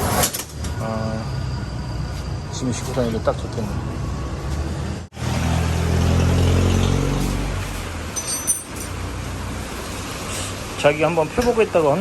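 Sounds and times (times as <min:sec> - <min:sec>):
vehicle engine passing: 0:01.1 - 0:12.0.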